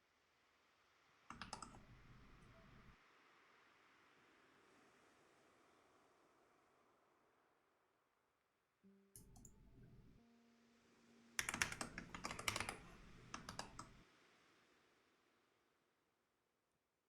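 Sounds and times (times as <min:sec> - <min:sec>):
typing on computer keyboard: 0:01.3 - 0:03.0, 0:09.2 - 0:10.2, 0:11.4 - 0:14.0.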